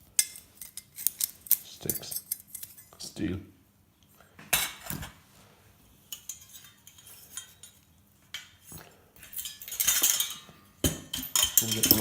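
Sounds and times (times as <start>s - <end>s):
metal chandelier parts clinking: 0.0s - 3.0s, 6.0s - 12.0s.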